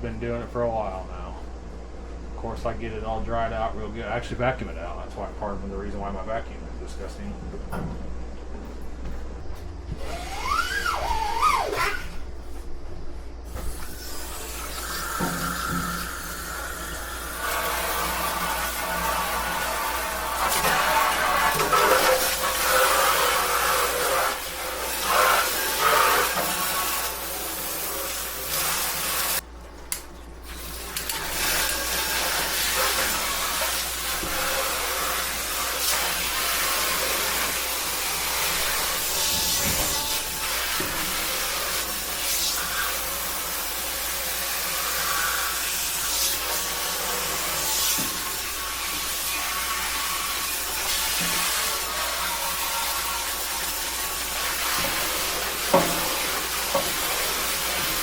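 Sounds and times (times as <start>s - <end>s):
hose water spraying into metal vat: 10.0s - 12.2s, 13.5s - 29.4s, 30.4s - 58.0s.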